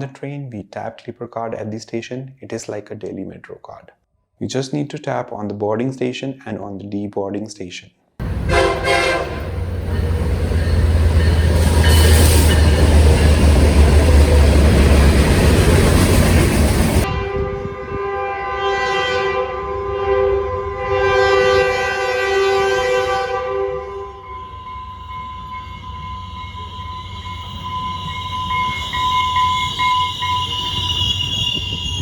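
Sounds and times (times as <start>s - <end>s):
train horn chord: 8.2s - 13.2s, 17.0s - 25.2s
train passing with heavy rumble: 8.2s - 18.6s, 24.2s - 32.0s.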